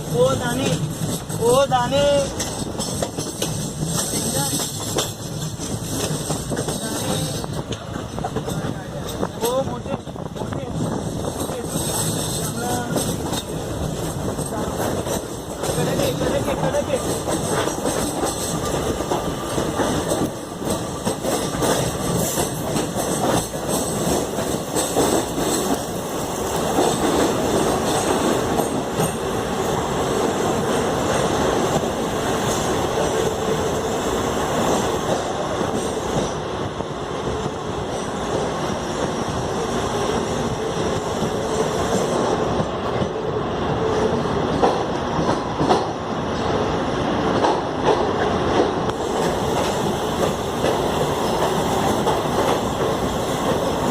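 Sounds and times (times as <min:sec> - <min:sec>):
train coaches rumbling: 0:00.0 - 0:53.9
wheels clattering over rail joints: 0:02.2 - 0:29.8.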